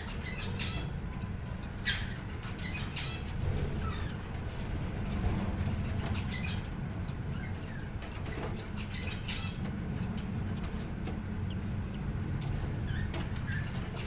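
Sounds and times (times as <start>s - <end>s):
budgies chirping: 0.0s - 4.9s, 5.8s - 6.7s, 7.3s - 9.6s, 12.8s - 14.0s
steady low hum: 0.0s - 14.0s.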